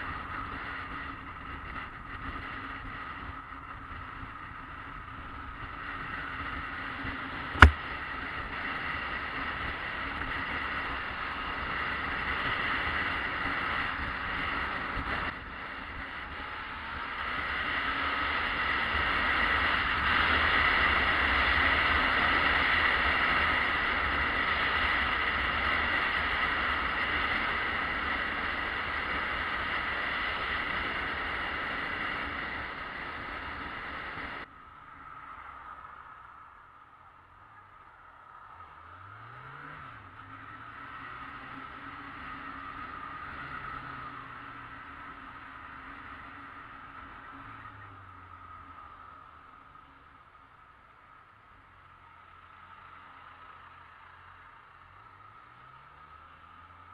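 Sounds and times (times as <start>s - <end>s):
motorcycle engine running: 0.0s - 34.5s
sharp click: 7.6s - 7.8s.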